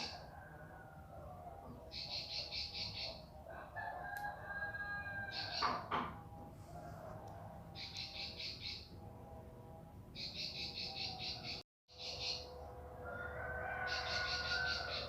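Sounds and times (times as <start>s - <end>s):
bird trilling high chirps: 7.8s - 8.9s, 10.2s - 12.5s, 13.9s - 15.0s.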